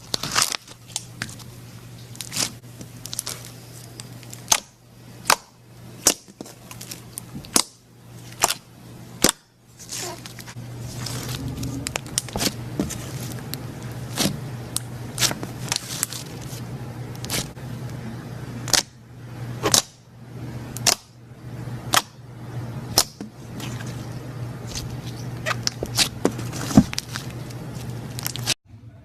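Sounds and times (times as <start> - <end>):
low hum: 10.5 - 18.6.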